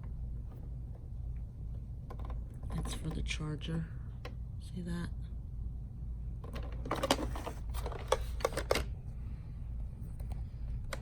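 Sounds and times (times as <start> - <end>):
plastic parts and packaging rattling: 2.1 - 3.3, 6.4 - 9.0.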